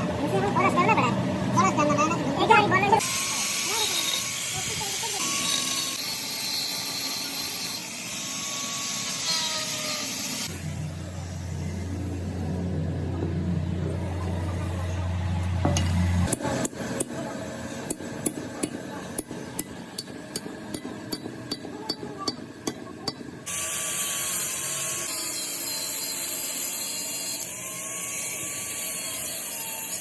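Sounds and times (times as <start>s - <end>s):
hammer tapping on metal: 17.9s - 23.3s.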